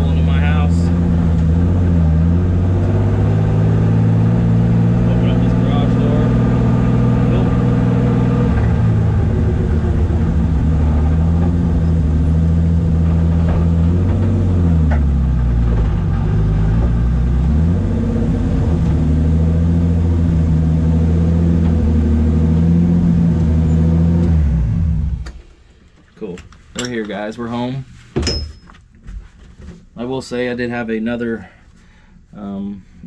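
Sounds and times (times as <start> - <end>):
car engine running in cabin: 0.0 - 25.4.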